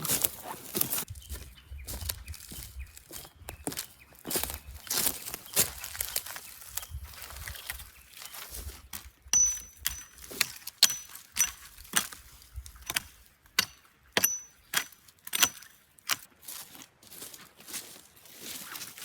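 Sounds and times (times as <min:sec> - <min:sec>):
sharp metallic strikes: 0:09.4 - 0:10.2, 0:13.6 - 0:14.6.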